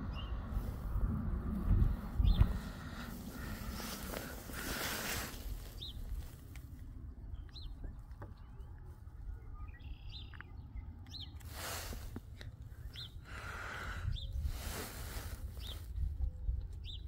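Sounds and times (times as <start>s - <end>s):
small birds chirping: 0.0s - 0.8s, 1.7s - 17.0s
low steady rumble: 0.0s - 17.0s.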